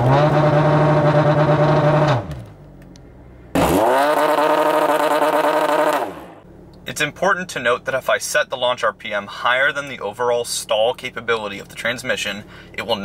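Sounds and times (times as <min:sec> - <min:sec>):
car engine revving: 0:00.0 - 0:06.5
engine idling: 0:04.4 - 0:13.0.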